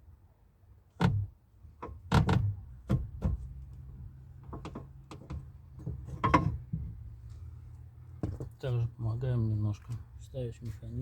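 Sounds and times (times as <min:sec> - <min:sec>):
knocks and clicks of car door parts: 0:01.0 - 0:03.5.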